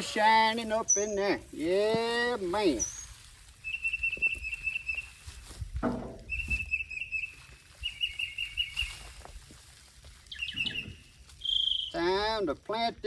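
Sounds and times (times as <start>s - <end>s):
songbird trilling: 3.6s - 5.1s, 6.3s - 8.9s, 10.3s - 12.0s
low scuffing and thumping: 5.3s - 6.9s.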